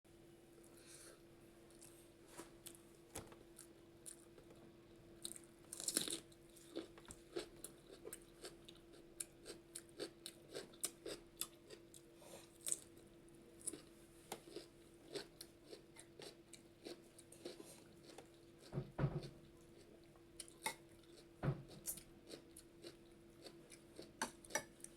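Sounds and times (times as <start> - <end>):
faint steady hum: 0.1 - 24.9
person chewing: 5.2 - 13.0, 13.6 - 24.9.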